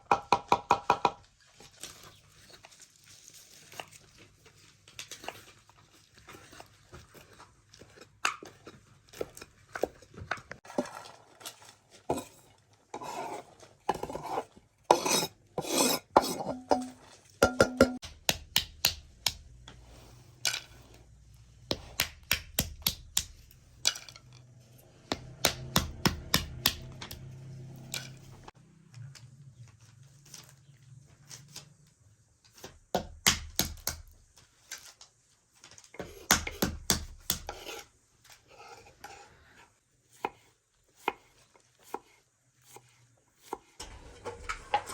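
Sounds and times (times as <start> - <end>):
pots and dishes clattering: 16.2 - 18.0, 43.8 - 44.9.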